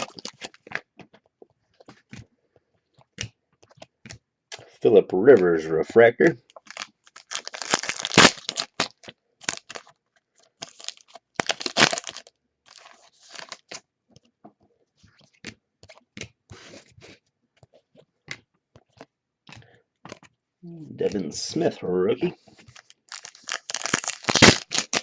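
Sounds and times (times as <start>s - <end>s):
wrapper crinkling and tearing: 0.0s - 0.9s, 6.5s - 13.8s, 22.6s - 25.0s
cards being shuffled: 6.5s - 14.3s, 15.0s - 20.4s, 22.4s - 25.0s.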